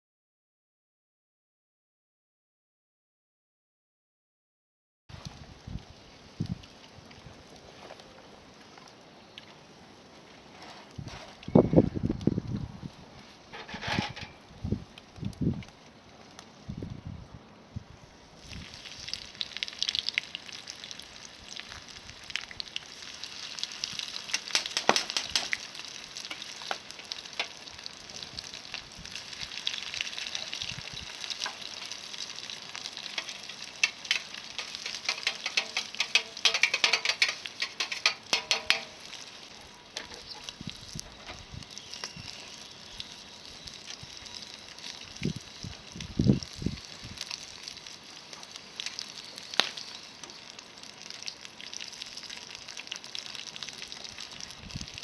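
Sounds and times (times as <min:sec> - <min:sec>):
shrimp deep-frying in oil: 0:18.3 - 0:55.0.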